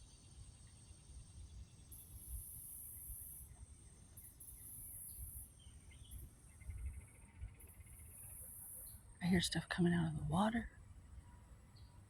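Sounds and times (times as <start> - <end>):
wind rumble on microphone: 6.0 - 7.6.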